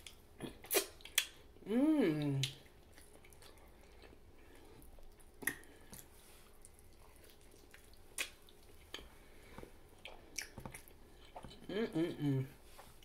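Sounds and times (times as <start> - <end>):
sharp wet smacks: 0.0 - 1.4, 5.4 - 6.1, 7.2 - 9.0
person chewing ribs: 0.0 - 1.6, 2.2 - 11.9.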